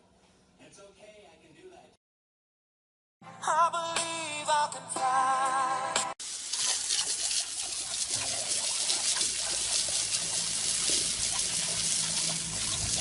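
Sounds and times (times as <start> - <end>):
running water splashing: 6.2 - 13.0.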